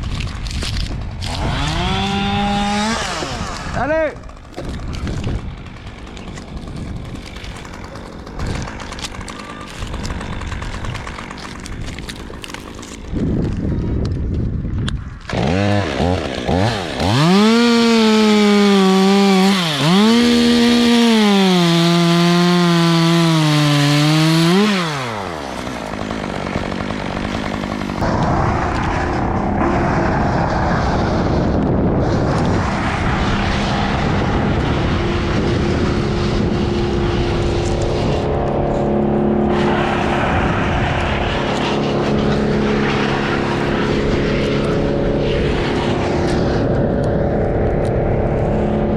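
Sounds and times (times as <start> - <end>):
chainsaw cutting wood: 0.0 - 14.3, 15.1 - 28.9, 33.8 - 39.7.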